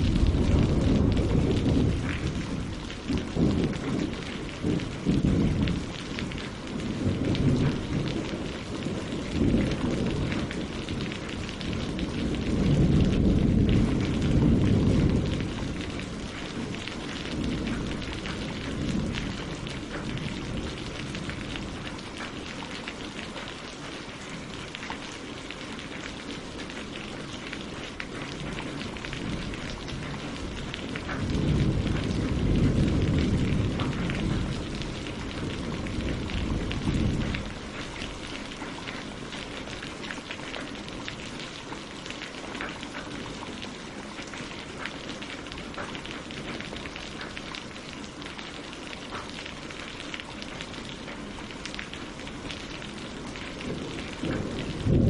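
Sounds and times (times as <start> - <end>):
rolling thunder: 0.0 - 22.3, 28.1 - 39.8, 51.8 - 55.0
rain on leaves and water: 0.0 - 55.0.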